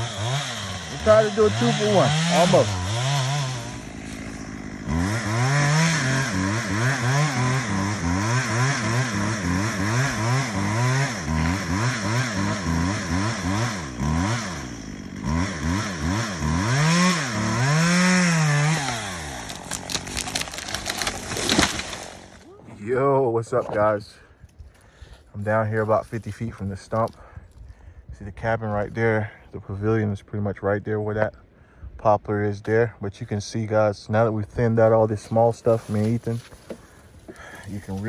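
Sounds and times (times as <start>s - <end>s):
chainsaw revving: 0.0s - 22.4s, 35.7s - 38.0s.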